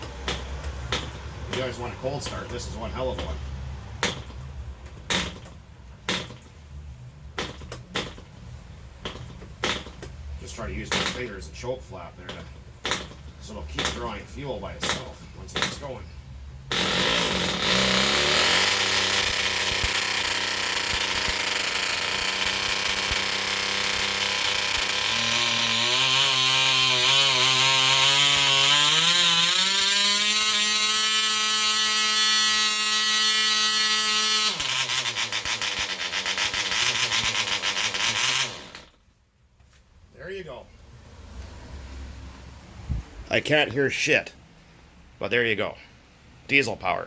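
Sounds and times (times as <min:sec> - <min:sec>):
model aircraft engine running: 0:16.8 - 0:38.8.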